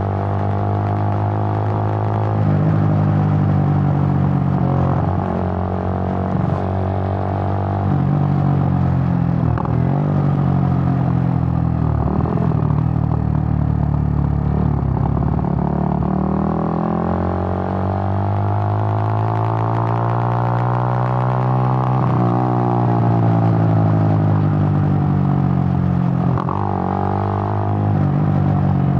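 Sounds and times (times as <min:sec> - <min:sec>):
motorcycle engine running: 0:00.4 - 0:17.8.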